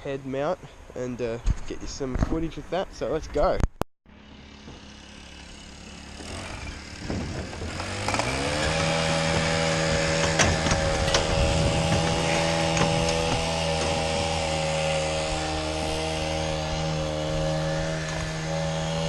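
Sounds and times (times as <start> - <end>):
small petrol engine revving: 4.1 - 19.0.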